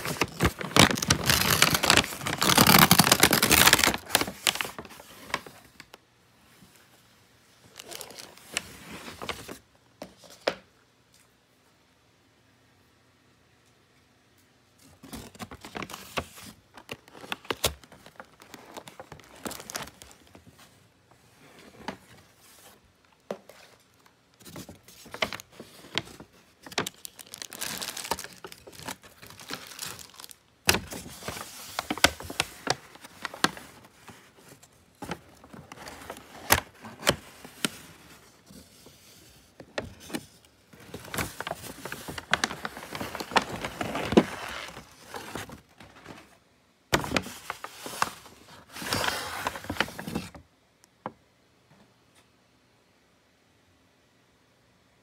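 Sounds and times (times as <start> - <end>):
food packaging crinkling: 0.0 - 5.9, 15.0 - 20.4, 23.9 - 34.2, 40.8 - 46.1.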